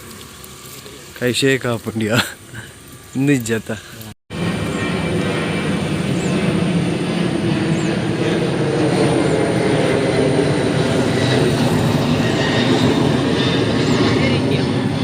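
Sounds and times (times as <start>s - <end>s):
passing vehicle rumble: 4.3s - 15.0s.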